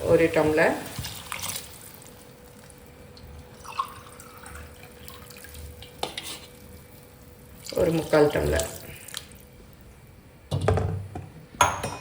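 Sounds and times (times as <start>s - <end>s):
water pouring into a pot: 3.5s - 6.0s.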